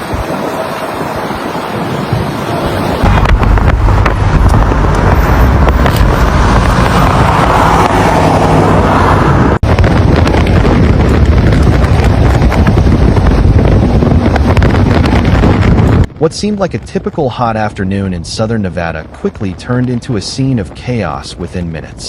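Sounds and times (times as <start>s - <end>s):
strong wind buffeting microphone: 0.0s - 22.0s.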